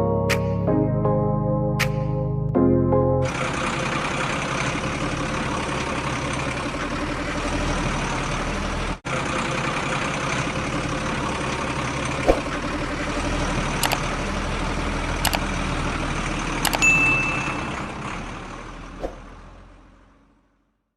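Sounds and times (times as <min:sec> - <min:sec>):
small tractor motor running: 0:03.3 - 0:18.9
sharp clicks: 0:13.8 - 0:14.0, 0:15.3 - 0:15.5, 0:16.7 - 0:17.1
high ding: 0:16.7 - 0:18.0.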